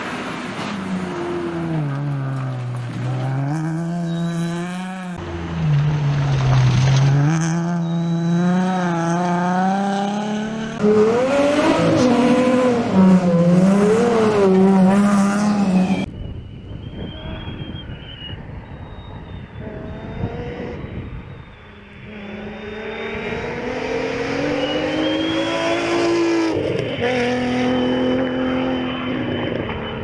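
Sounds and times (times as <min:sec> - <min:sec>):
car engine revving hard: 0:07.1 - 0:16.1, 0:22.0 - 0:29.8.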